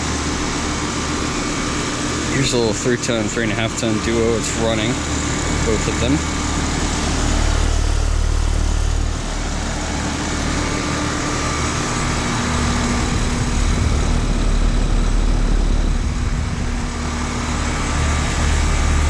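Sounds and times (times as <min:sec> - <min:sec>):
constant rushing noise: 0:00.0 - 0:19.0
heat pump hum: 0:00.0 - 0:19.0
uneven low rumble: 0:12.0 - 0:19.0.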